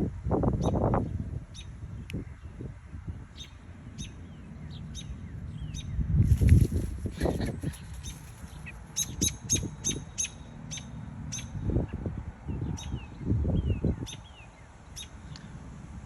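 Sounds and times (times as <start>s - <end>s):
bird alarm chips: 5.7s - 11.5s.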